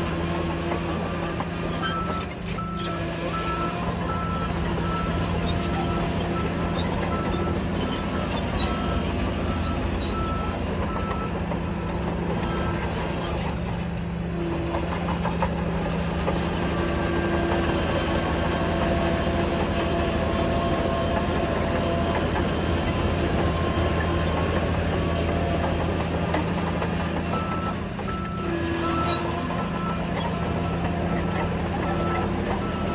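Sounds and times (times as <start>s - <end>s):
heavy diesel engines running: 0.0s - 32.9s
reversing alarm beeping: 1.7s - 13.0s, 27.2s - 32.9s.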